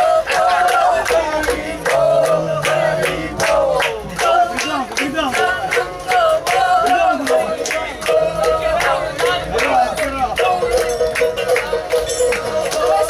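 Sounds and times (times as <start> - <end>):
percussion strikes: 10.4 - 13.0.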